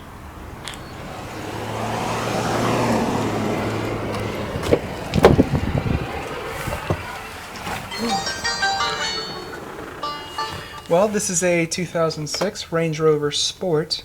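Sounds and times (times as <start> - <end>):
car passing by: 0.1 - 11.1.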